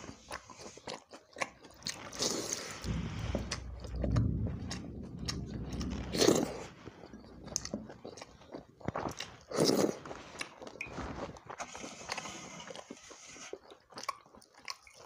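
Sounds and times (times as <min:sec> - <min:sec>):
person chewing food: 0:13.5 - 0:15.0.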